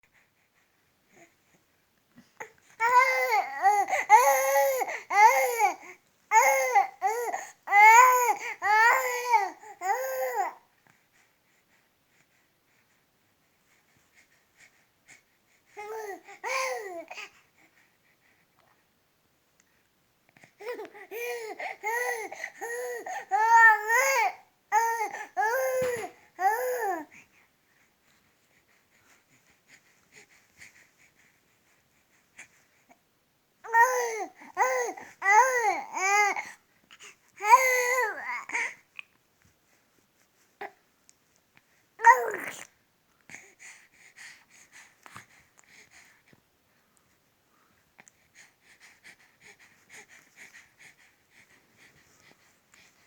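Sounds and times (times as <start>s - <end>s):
baby cooing and babbling: 2.4s - 10.6s, 15.8s - 17.3s, 20.6s - 27.1s, 33.6s - 36.5s, 37.4s - 38.8s, 42.0s - 42.7s
baby vocalizing: 42.0s - 42.7s.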